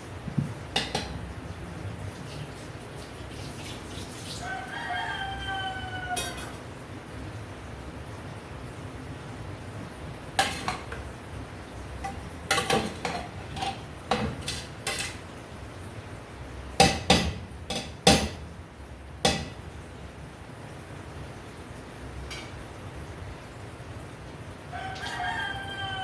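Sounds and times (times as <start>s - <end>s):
utensils clinking against cookware: 0.8s - 1.2s, 6.1s - 6.7s, 10.4s - 11.1s, 12.0s - 15.3s, 16.8s - 18.4s, 19.3s - 19.6s.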